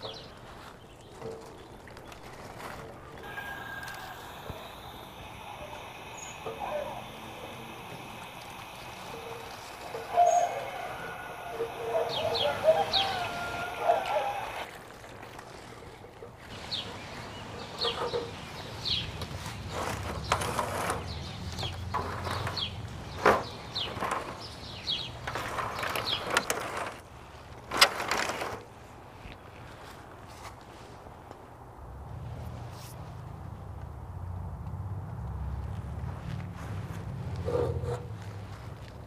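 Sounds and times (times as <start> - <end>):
birds chirping: 0.0 - 14.8, 16.4 - 26.5.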